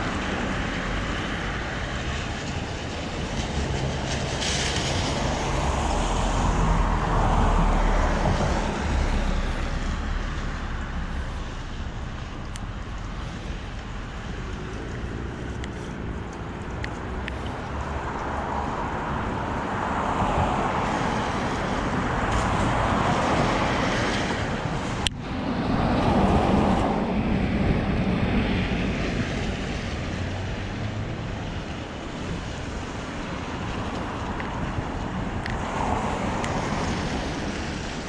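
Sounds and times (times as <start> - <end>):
fluctuating rumble: 0.0 - 19.8
traffic passing: 0.0 - 38.0
wind noise on microphone: 0.0 - 38.0.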